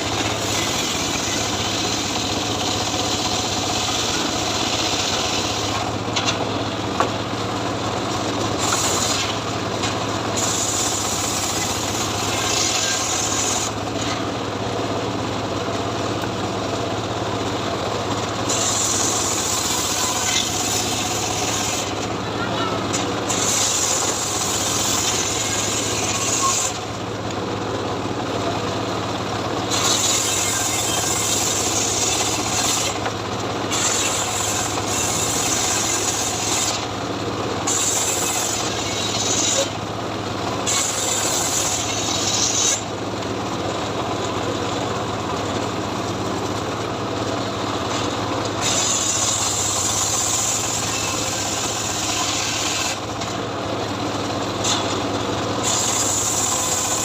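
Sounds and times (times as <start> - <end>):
saw blade cutting wood: 0.0 - 7.2, 8.0 - 14.4, 18.2 - 27.0, 29.6 - 37.0, 37.6 - 39.9, 40.6 - 43.0, 47.2 - 53.4, 54.5 - 57.0
engine drive humming: 0.0 - 57.0.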